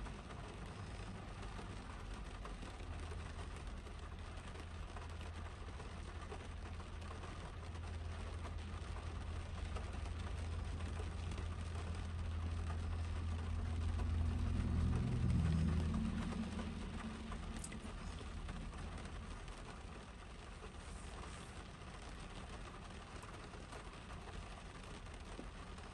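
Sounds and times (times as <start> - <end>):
low steady hum: 0.0 - 25.9
rain pattering on car roof: 0.0 - 25.9
vehicle passing: 12.1 - 19.8.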